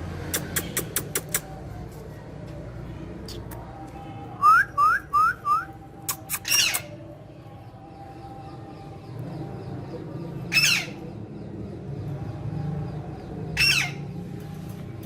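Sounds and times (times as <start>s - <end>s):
parrot calling: 6.2s - 6.9s, 10.5s - 11.0s, 13.6s - 14.0s.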